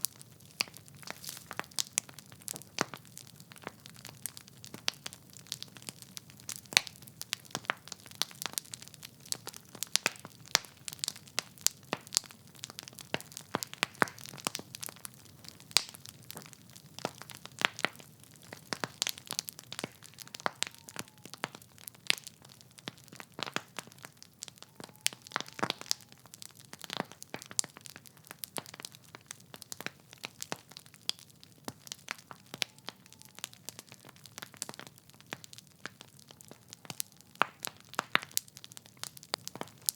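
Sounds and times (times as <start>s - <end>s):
logs crackling in fireplace: 0.0s - 39.9s.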